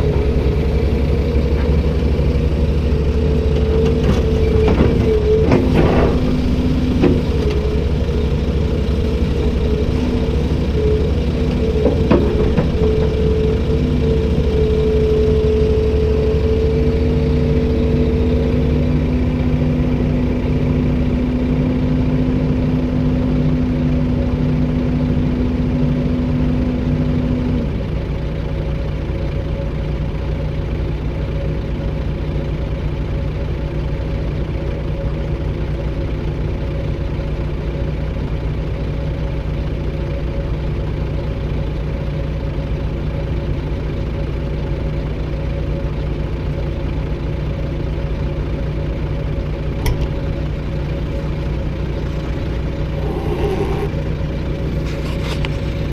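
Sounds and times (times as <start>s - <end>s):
excavator diesel engine idling: 0.0s - 55.9s
lower tone: 52.0s - 55.4s
higher tone: 52.9s - 54.2s.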